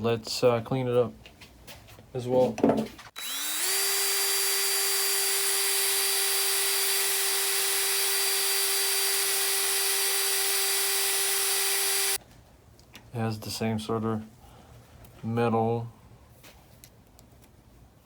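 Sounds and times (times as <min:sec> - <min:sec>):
electric power tool whining: 0:03.2 - 0:12.2.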